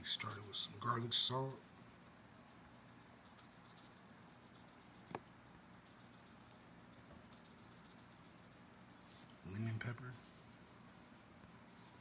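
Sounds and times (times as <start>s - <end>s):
salt shaker rattling: 0.0s - 8.7s.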